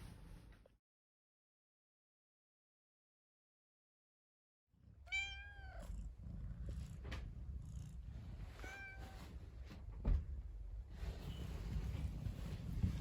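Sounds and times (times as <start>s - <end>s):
cat meowing: 5.1s - 5.9s, 8.6s - 9.2s
thump: 10.0s - 10.4s.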